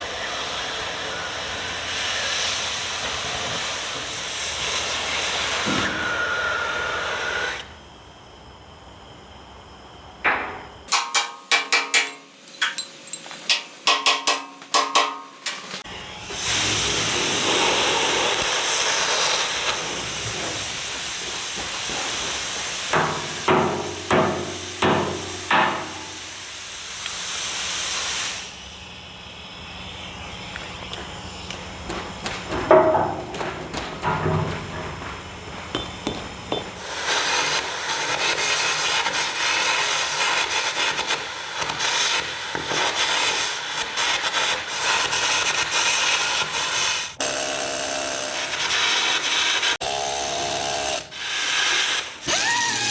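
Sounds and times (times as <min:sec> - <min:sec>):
harsh metalworking hiss: 0:00.0 - 0:07.9, 0:10.3 - 0:47.2, 0:48.4 - 0:49.8, 0:51.0 - 0:52.9
hammer striking steel: 0:10.3 - 0:15.6, 0:22.9 - 0:26.2, 0:31.9 - 0:36.9.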